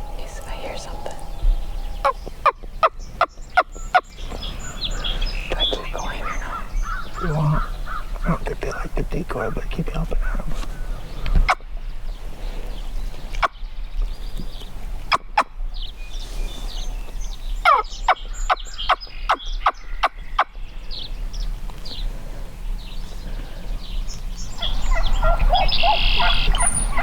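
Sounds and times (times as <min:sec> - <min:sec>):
turkey yelping: 0:24.6 - 0:27.0.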